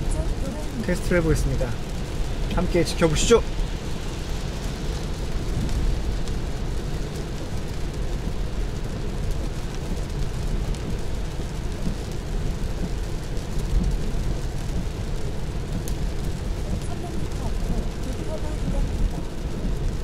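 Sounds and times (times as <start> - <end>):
rain hissing: 0.0 - 20.0
tyre and road noise: 0.0 - 20.0.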